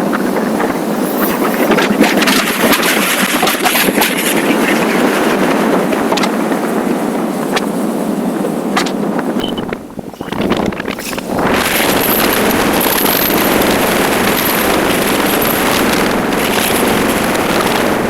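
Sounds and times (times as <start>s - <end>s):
wind and road noise: 0.0s - 18.0s
motorcycle engine running: 10.7s - 18.0s.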